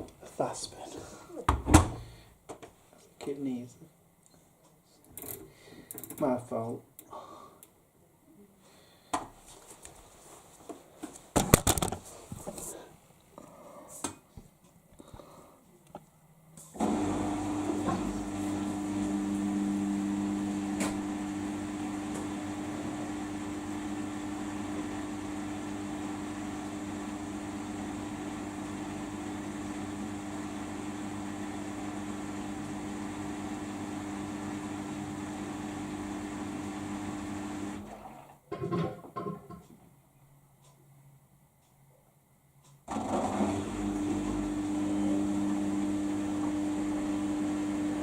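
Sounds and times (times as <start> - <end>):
washing machine drain pump humming: 16.8 - 39.8, 42.9 - 48.0.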